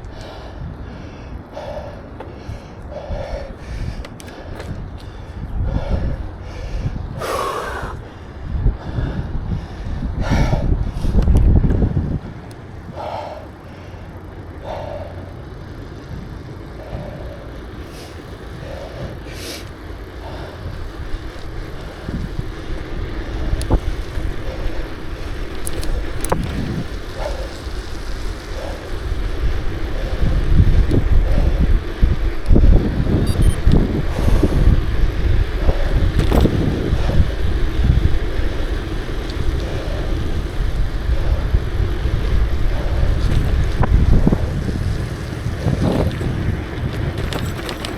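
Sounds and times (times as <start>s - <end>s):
bicycle road noise: 0.0s - 47.9s
wind buffeting microphone: 0.0s - 47.9s.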